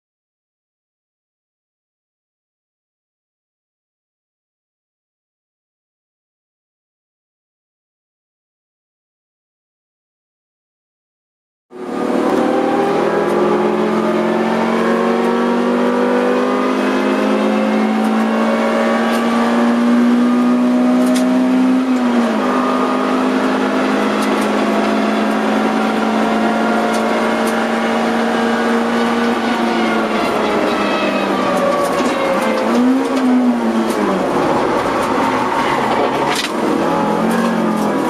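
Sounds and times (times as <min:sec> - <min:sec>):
car engine at high revs: 0:11.7 - 0:38.0.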